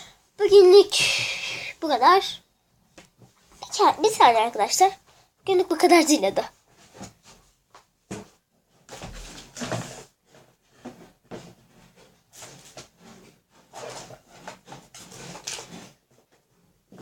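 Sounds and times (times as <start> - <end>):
household objects rubbing and scraping: 8.9 - 17.0.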